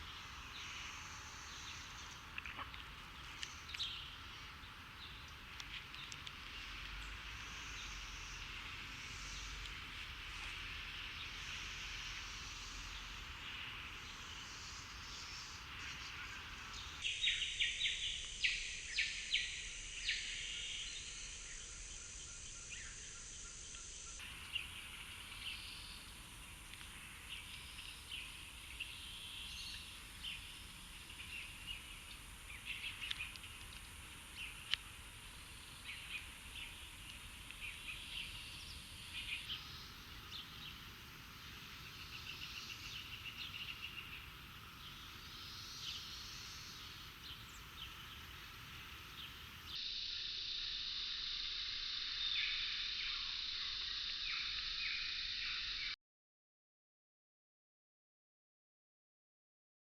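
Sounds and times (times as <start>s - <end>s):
high background hiss: 0.0s - 56.0s
sparrows chirping: 35.6s - 49.8s.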